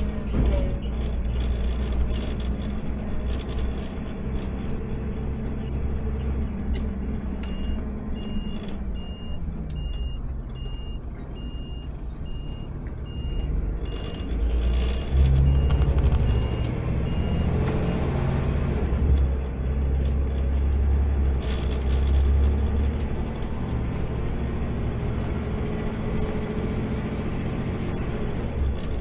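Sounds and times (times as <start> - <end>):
truck engine rumbling: 0.0 - 29.0
reversing alarm beeping: 7.4 - 18.1.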